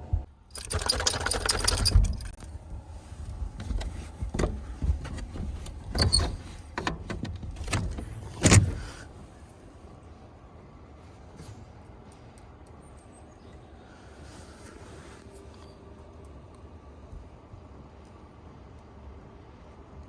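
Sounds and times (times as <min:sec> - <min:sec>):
low hum: 0:00.0 - 0:14.1
rustling and scuffing: 0:02.4 - 0:09.4.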